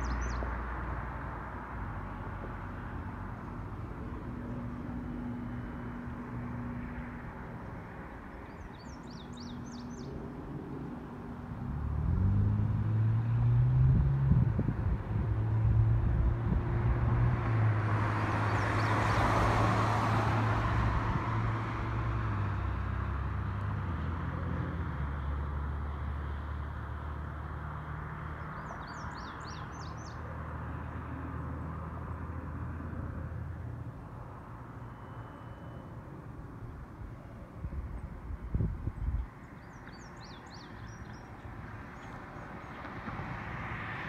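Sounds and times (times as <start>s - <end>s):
bird chirping: 0.0s - 0.5s, 8.3s - 10.2s, 18.5s - 19.2s, 28.4s - 30.3s, 39.1s - 42.8s.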